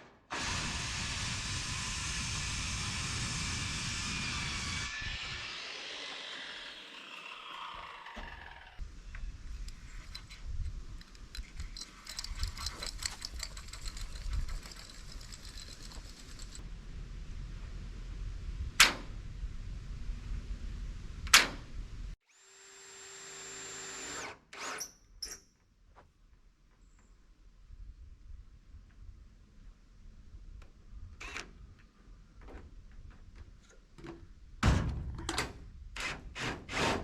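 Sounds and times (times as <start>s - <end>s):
power tool whirring: 0.3s - 8.8s, 22.2s - 25.0s
rapid clicking: 11.0s - 16.6s
low rumble: 16.6s - 22.2s.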